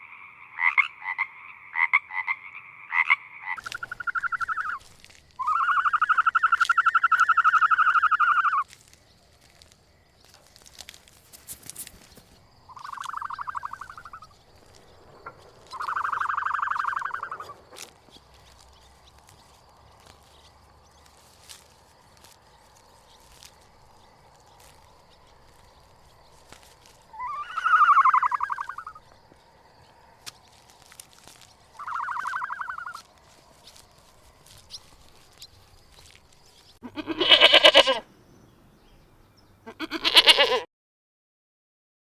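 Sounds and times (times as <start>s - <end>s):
frog trilled calls: 0.0s - 8.7s, 12.6s - 18.0s, 27.1s - 29.2s, 31.3s - 33.1s, 36.8s - 38.0s, 39.6s - 40.7s
frogs croaking: 0.0s - 40.6s.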